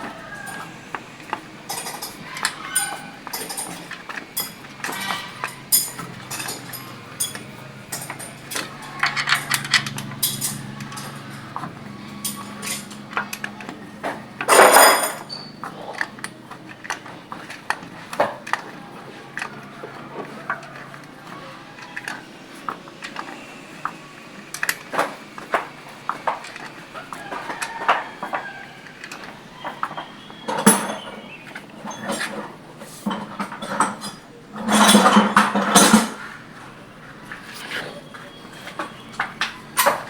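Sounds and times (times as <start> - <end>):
metal tools clicking and clinking: 0.1 - 18.7, 26.1 - 36.3, 37.3 - 40.0.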